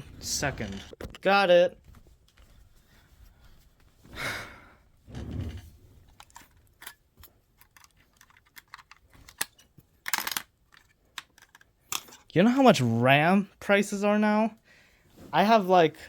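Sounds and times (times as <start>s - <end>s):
plastic parts clicking and tapping: 6.1s - 12.3s.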